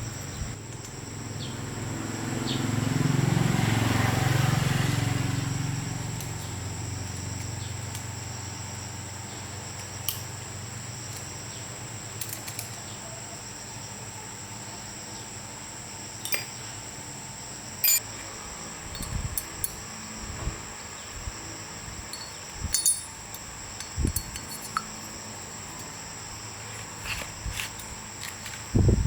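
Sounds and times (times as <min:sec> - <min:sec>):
high-pitched whine: 0:17.8 - 0:19.2
motor low hum: 0:17.8 - 0:29.0.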